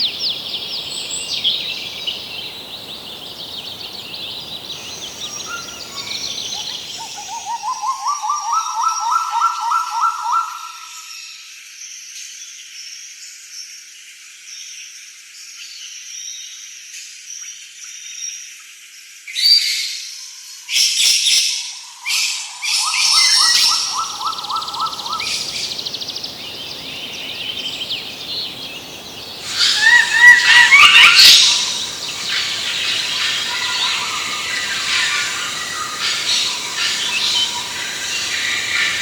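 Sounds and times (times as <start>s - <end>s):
birds chirping: 0.0s - 7.9s, 23.0s - 39.0s
rapid pulsing bird call: 0.0s - 10.0s, 22.9s - 39.0s.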